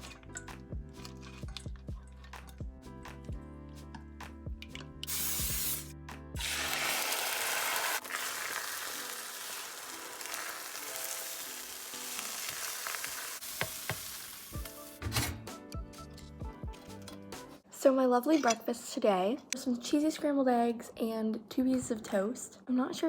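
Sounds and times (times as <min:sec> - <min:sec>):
background music: 0:00.0 - 0:18.6
eggs sizzling in a frying pan: 0:06.4 - 0:14.7.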